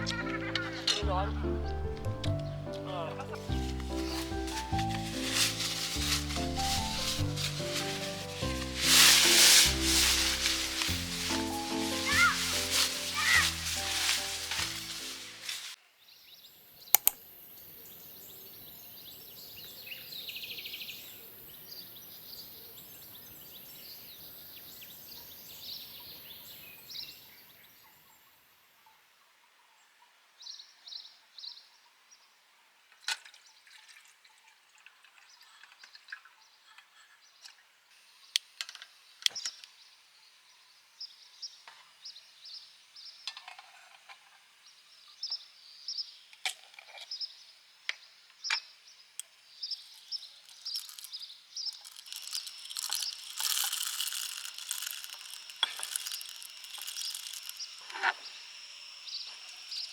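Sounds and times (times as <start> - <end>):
birds chirping: 0.0 - 27.9, 48.5 - 59.9
sharp clicks: 16.9 - 17.3.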